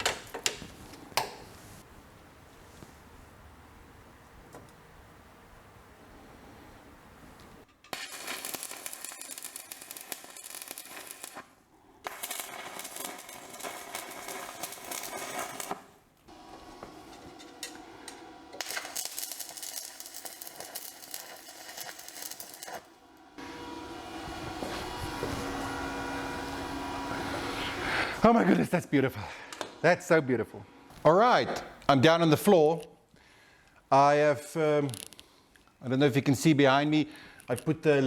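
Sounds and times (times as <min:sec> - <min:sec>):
arc welding crackle: 0:07.9 - 0:28.2.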